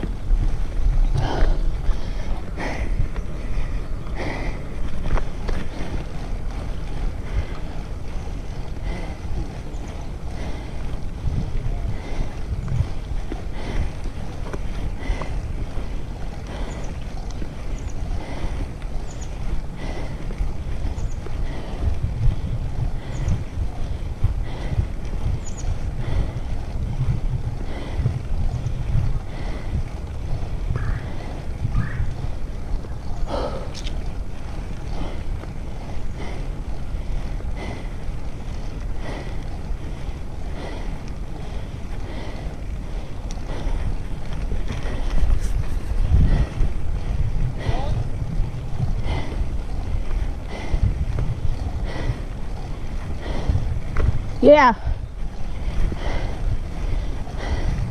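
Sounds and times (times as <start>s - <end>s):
wind buffeting microphone: 0.0s - 57.9s
faint clicks: 33.6s - 34.0s.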